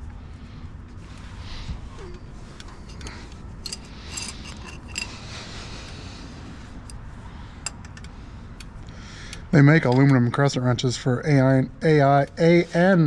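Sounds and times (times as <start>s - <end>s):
wrench clicking on metal fitting: 2.6s - 5.2s, 7.6s - 8.1s
sharp metallic clinks: 2.9s - 5.2s.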